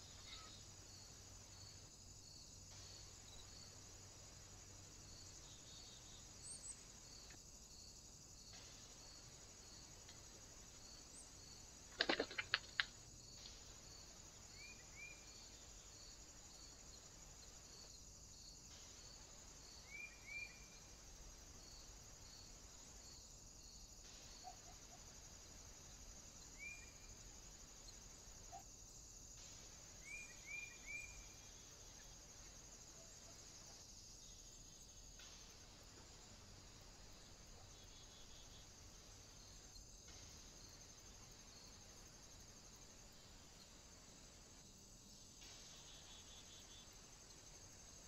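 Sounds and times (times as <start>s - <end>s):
insect hiss: 0.0s - 48.0s.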